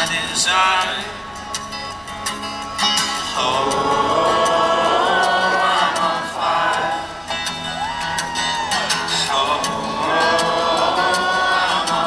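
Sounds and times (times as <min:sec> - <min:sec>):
voices singing in harmony: 0:03.2 - 0:12.0.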